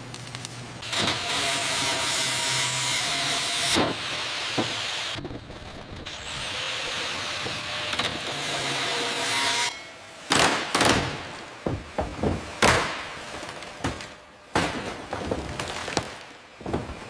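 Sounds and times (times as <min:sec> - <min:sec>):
sharp knocks: 0:10.3 - 0:17.0.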